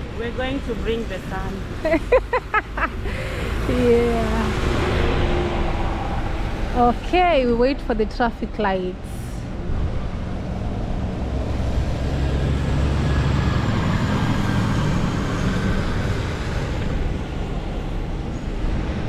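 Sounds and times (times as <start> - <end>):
vehicle passing: 0.0 - 19.0.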